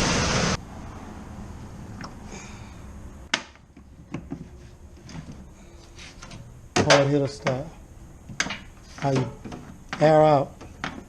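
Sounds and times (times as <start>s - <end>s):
handling clicks and knocks: 6.2s - 11.0s.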